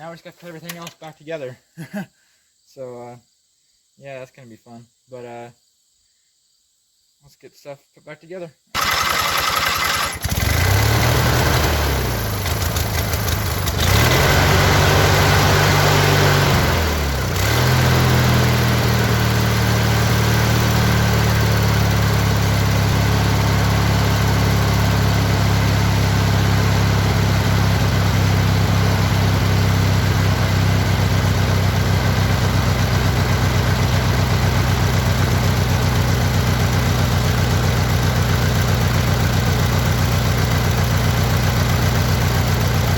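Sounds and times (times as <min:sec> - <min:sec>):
lawn tractor engine running: 0:08.8 - 0:42.9.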